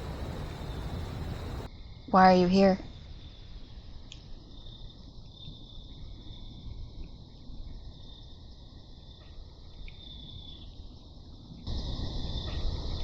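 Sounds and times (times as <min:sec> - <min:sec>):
faint low rumble: 0:00.0 - 0:03.3
crickets trilling: 0:00.0 - 0:09.2, 0:09.8 - 0:13.0.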